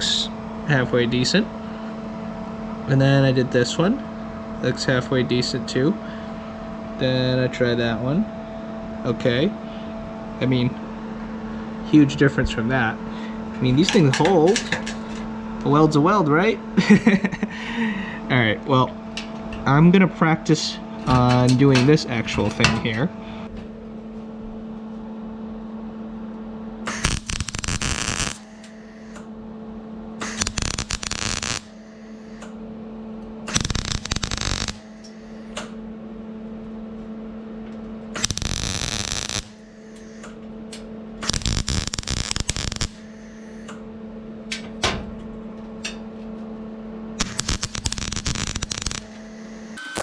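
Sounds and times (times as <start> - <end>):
welder electrical hum: 0.0 - 50.0
crackling welding arc: 26.9 - 29.2, 30.2 - 32.5, 33.5 - 35.7, 38.2 - 40.4, 41.2 - 43.8, 47.2 - 50.0.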